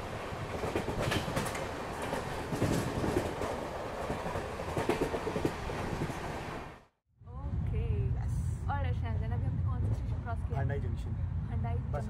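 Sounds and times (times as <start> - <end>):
wheels clicking on rails: 0.0 - 6.4
train rushing noise: 0.0 - 6.9.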